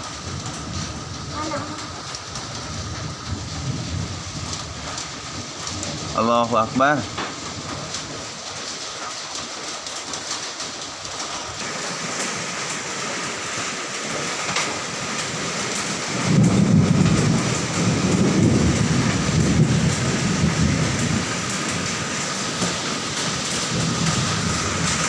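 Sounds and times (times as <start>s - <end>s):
hailstones ticking: 0.0s - 25.0s
heavy rain pelting down: 0.0s - 25.0s
deep rumbling: 16.1s - 22.0s.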